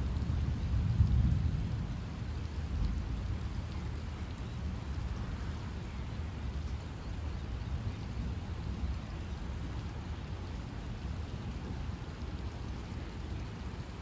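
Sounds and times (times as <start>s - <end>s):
steady rain falling: 0.0s - 14.0s
low thunder rumble: 0.2s - 3.3s.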